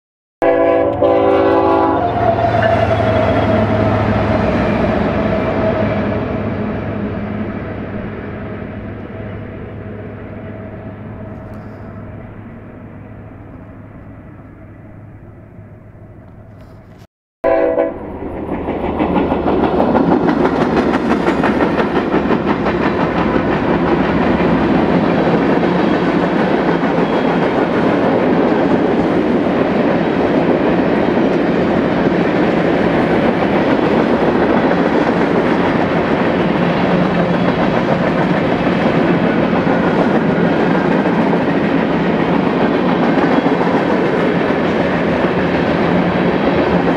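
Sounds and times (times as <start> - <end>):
train horn blast: 0.4 - 7.3, 17.4 - 18.1
diesel locomotive running: 0.4 - 46.9
freight train wheels clacking: 18.0 - 46.9.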